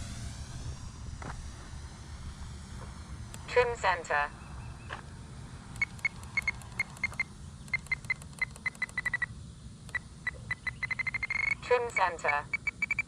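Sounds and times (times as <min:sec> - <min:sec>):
short high beeps: 0:09.9 - 0:13.0.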